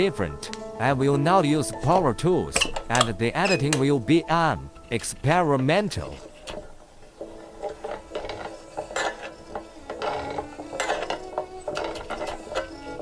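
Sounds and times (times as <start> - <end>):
hand tools clicking and ratcheting: 1.7 - 3.9, 4.7 - 13.0
metal clinking on metal: 2.5 - 3.9, 6.2 - 13.0.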